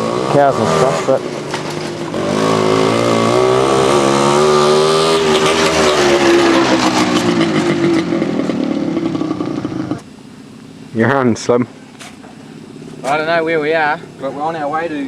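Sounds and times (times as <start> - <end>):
two-stroke motorcycle engine running: 0.0 - 10.1.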